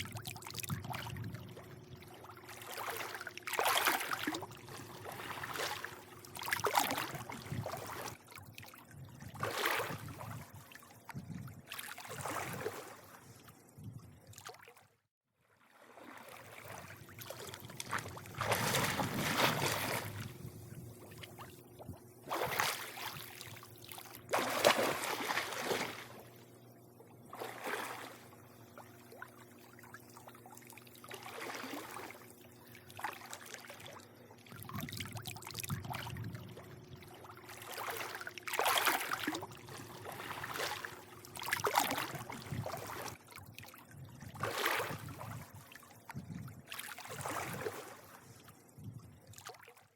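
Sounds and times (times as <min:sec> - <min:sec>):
pool water lapping and sloshing: 0:00.0 - 0:49.9
faint low hum: 0:16.3 - 0:49.4.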